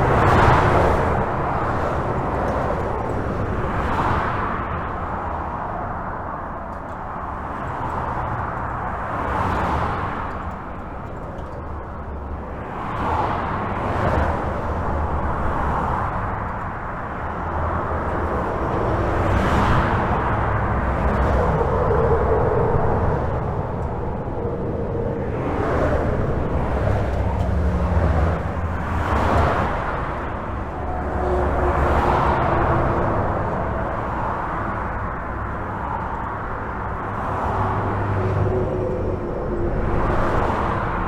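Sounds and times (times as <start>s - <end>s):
highway traffic rushing: 0.0s - 41.0s
vehicles passing: 0.0s - 41.0s.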